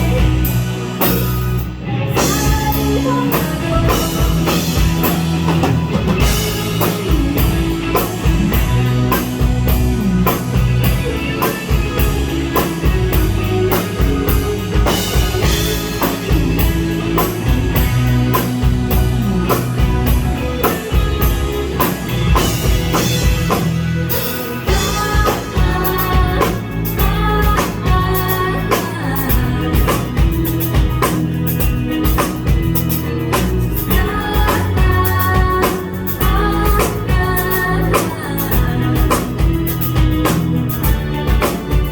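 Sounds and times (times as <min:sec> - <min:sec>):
drum kit: 0:00.0 - 0:41.9
rock band playing: 0:00.0 - 0:41.9.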